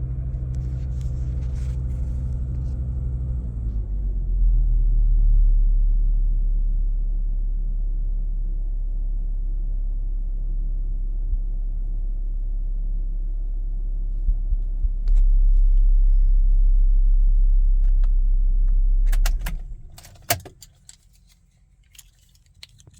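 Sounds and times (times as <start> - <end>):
car engine idling: 0.0 - 3.7, 10.8 - 21.8.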